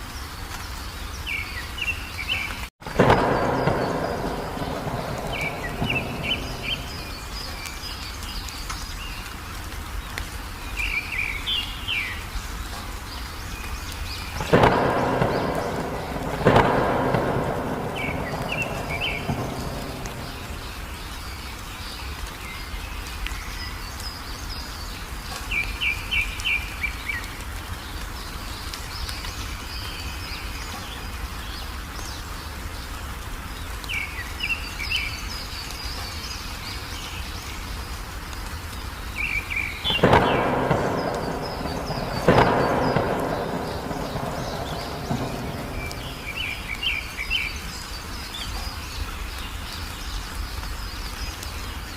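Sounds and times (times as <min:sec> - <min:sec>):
songbird chirping: 0:00.0 - 0:51.9
steady rain: 0:00.0 - 0:51.9
thunder claps rumbling: 0:02.8 - 0:08.4, 0:13.9 - 0:21.4, 0:39.2 - 0:47.9.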